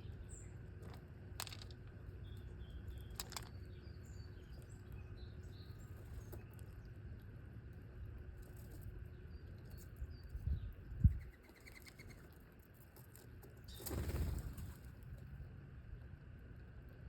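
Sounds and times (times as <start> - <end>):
bird wings fluttering: 13.7 - 14.8.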